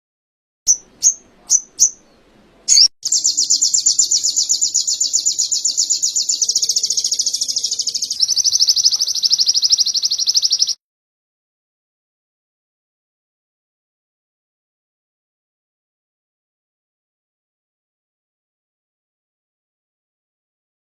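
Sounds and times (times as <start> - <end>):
bird chirps and trill: 0.7 - 10.8.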